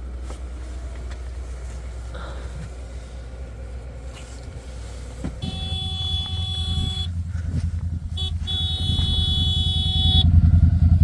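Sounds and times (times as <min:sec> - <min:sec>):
farm vehicle engine revving: 0:00.0 - 0:11.0
vehicle horn blasts: 0:05.4 - 0:07.2, 0:08.0 - 0:10.4.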